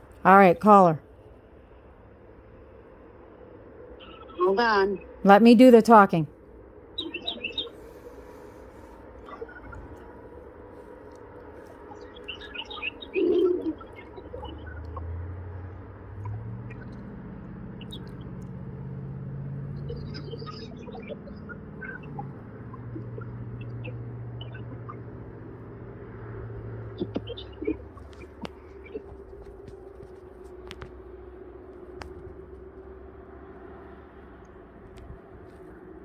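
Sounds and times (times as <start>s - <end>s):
low steady drone: 0.0s - 36.0s
small birds chirping: 4.0s - 5.2s, 6.9s - 18.8s, 19.6s - 25.2s, 26.8s - 29.5s.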